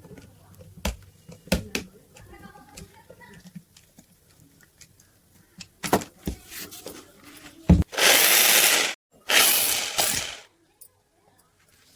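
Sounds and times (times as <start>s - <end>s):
electric drill running: 7.9s - 10.5s.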